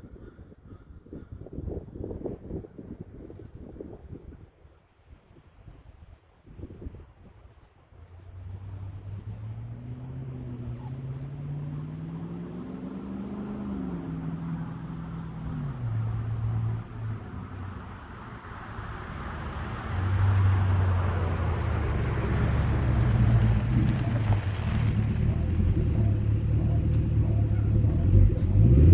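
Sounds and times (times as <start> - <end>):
car exhaust on drive-by: 8.1 - 28.9.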